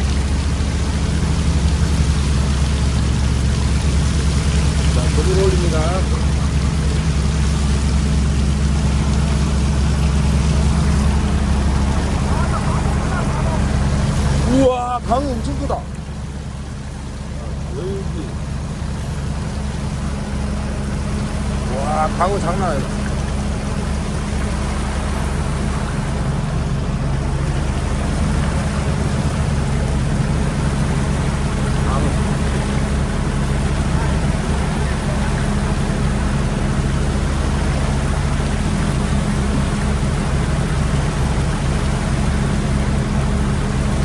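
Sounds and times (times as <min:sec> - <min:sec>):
boat engine drone: 0:00.0 - 0:44.0.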